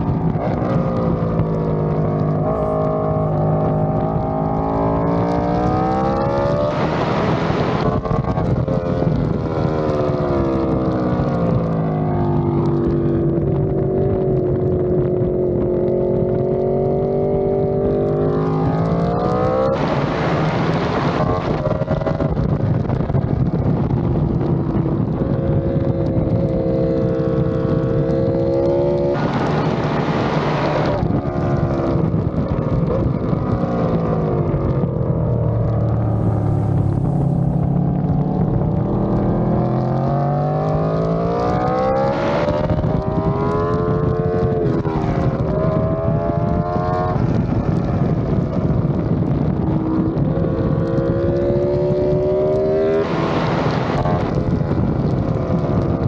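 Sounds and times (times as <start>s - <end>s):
motorcycle engine at high speed: 0.0s - 56.0s
rushing noise: 35.2s - 42.6s.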